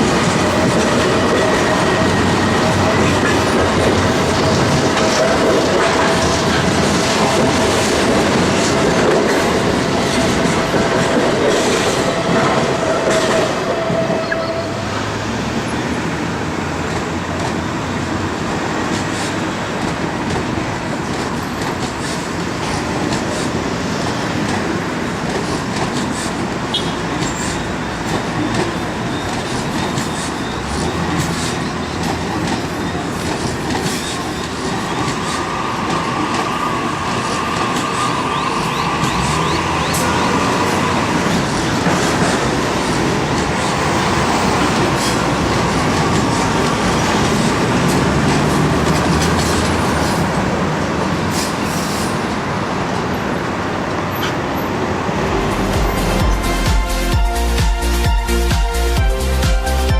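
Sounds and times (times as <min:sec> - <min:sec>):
train wheels clattering over rail joints: 0:00.0 - 0:14.0, 0:16.8 - 0:52.5
high wheel squeal: 0:11.6 - 0:15.2, 0:26.1 - 0:42.4.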